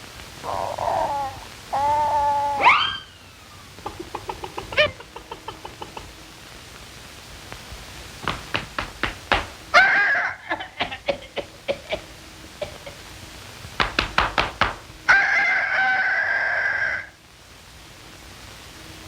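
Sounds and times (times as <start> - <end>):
sharp knocks and taps: 8.2 - 9.6, 13.8 - 14.9.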